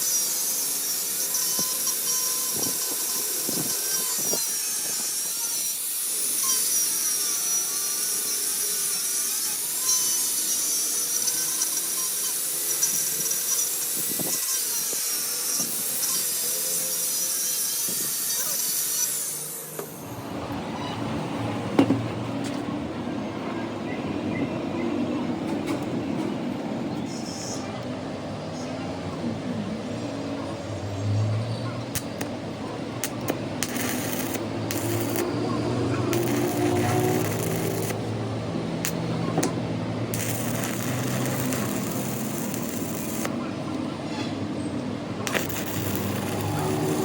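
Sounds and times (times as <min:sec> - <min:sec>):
power tool grinding metal: 0:00.0 - 0:20.2, 0:31.8 - 0:43.8, 0:45.1 - 0:47.0.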